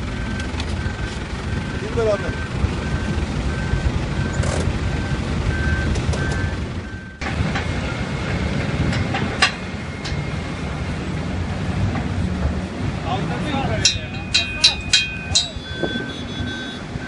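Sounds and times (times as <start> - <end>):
heavy machinery engine rumble: 0.0 - 17.0
reversing alarm beeps: 0.1 - 11.0, 13.9 - 17.0.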